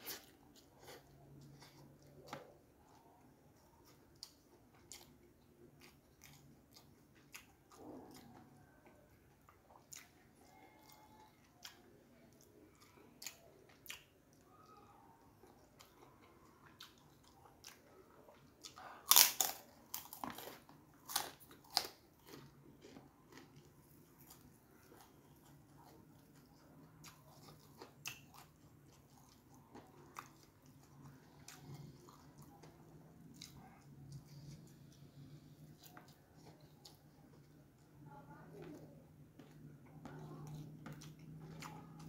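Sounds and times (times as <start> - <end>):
soft wet chewing: 0.0 - 42.0
cracker crunching: 15.4 - 34.9.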